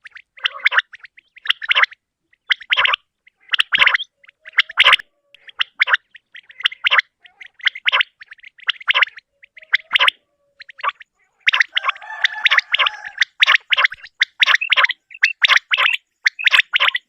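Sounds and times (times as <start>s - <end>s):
quail calling: 0.0s - 17.0s.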